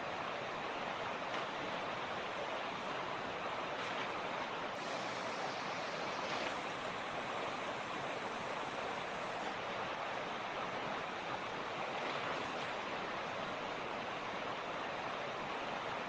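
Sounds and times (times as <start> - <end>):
creek rushing over rocks: 0.0 - 16.0.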